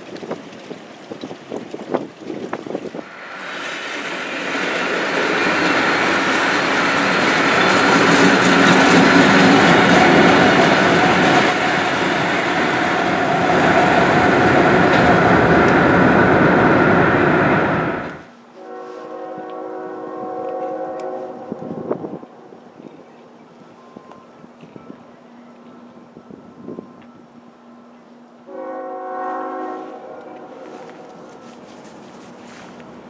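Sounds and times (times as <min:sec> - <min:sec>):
road rush: 0:00.0 - 0:18.3, 0:29.9 - 0:33.0
diesel locomotives running: 0:00.0 - 0:33.0
wind: 0:00.0 - 0:33.0.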